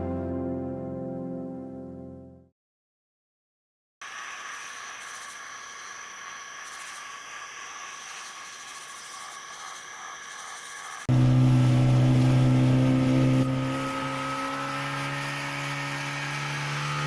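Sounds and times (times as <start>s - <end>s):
loud motor drone: 11.1s - 17.0s.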